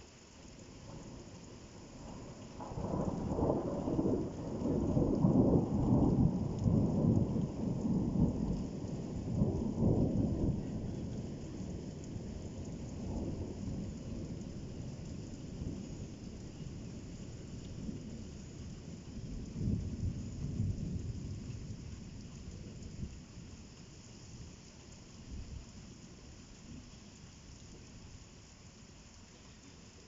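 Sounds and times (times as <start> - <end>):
rain falling: 0.0 - 30.0
rolling thunder: 1.9 - 23.5.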